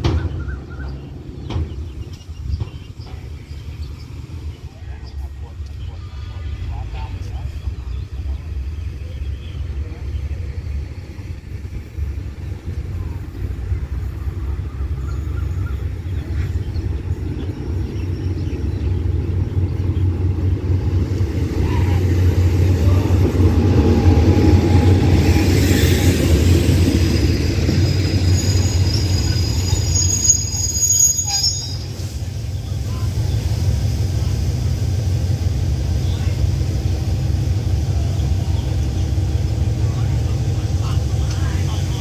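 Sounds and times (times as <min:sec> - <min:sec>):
diesel train rumbling past: 0:00.0 - 0:42.0
high squeal of wheels and brakes: 0:25.5 - 0:32.2.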